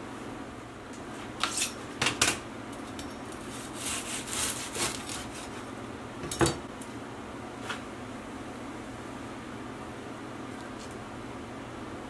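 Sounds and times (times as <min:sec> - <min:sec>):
knife sawing through crisp crust: 0:03.4 - 0:05.6.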